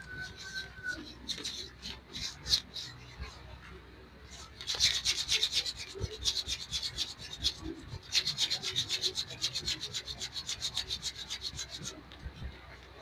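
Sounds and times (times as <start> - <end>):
hands rubbing oiled skin: 0.0 - 3.4, 4.3 - 12.6.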